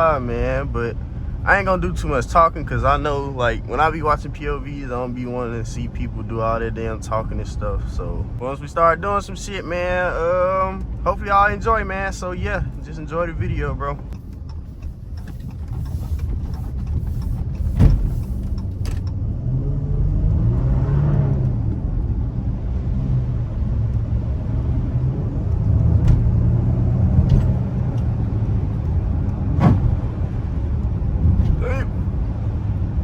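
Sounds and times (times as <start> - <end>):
car engine running: 0.0 - 19.4, 21.3 - 33.0.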